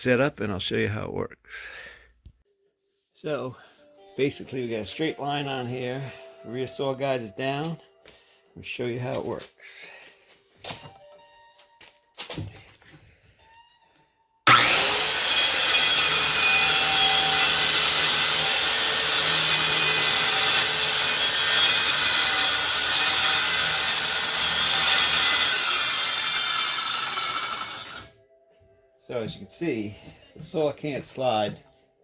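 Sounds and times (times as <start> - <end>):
circular saw cutting wood: 14.5 - 28.1.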